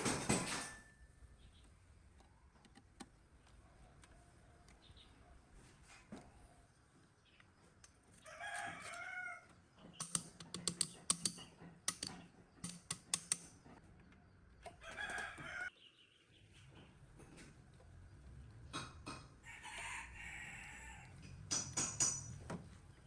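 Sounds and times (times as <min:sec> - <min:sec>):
rooster crowing: 0:08.2 - 0:09.5, 0:14.8 - 0:15.7, 0:19.4 - 0:21.2
sharp metallic clicks and taps: 0:09.8 - 0:14.7, 0:21.2 - 0:22.6.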